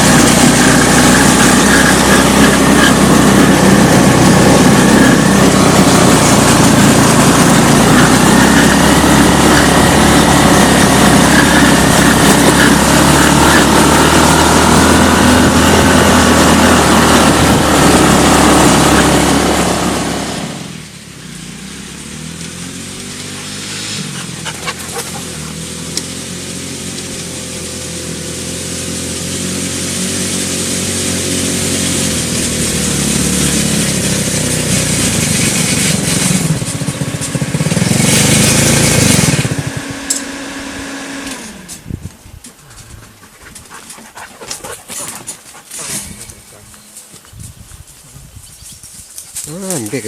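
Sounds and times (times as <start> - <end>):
quad bike engine running: 0.0 - 47.0, 48.9 - 50.0.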